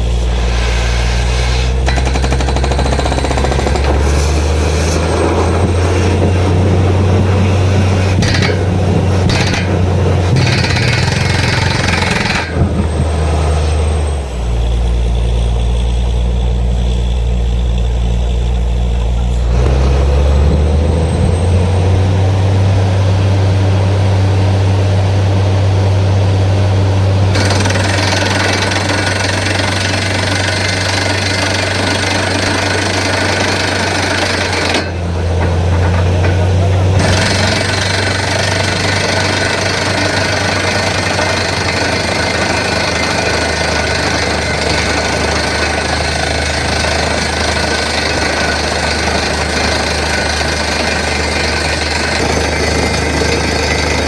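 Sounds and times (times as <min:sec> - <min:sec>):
hissing rush of air: 0:00.0 - 0:01.8
drilling rig engine and hammer: 0:00.0 - 0:54.0.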